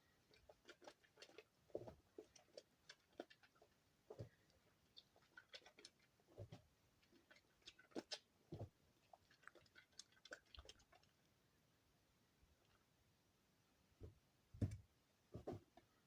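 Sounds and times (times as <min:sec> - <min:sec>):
soft taps: 0:14.0 - 0:15.9.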